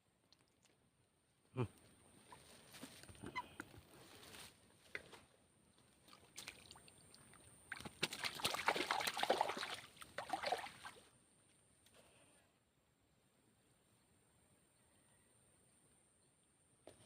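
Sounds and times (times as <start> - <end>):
water splashing and sloshing: 5.8 - 11.1.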